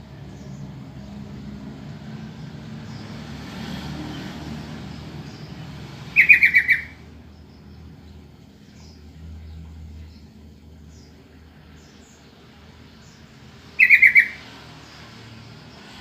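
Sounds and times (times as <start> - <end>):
bulbul call: 6.2 - 7.0, 13.8 - 14.4.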